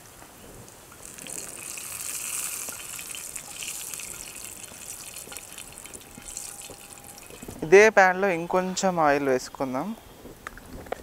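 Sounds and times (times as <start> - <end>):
eggplant sizzling in hot oil: 0.0 - 7.6.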